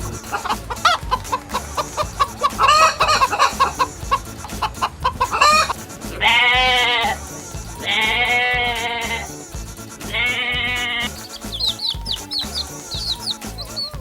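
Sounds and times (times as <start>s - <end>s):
chickens clucking: 0.0s - 9.4s, 10.1s - 14.0s
loud drawn-out bleat: 6.2s - 7.2s, 7.9s - 9.3s, 10.0s - 11.0s.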